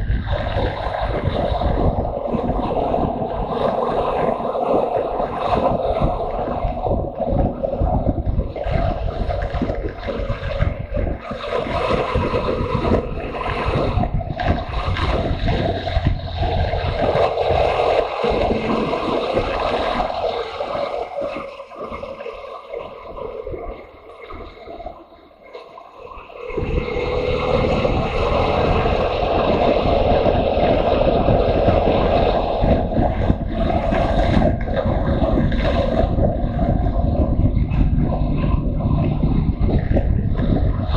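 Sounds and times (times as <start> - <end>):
wind buffeting microphone: 0.0 - 40.9
motorcycle engine running: 14.1 - 18.8, 26.6 - 40.8.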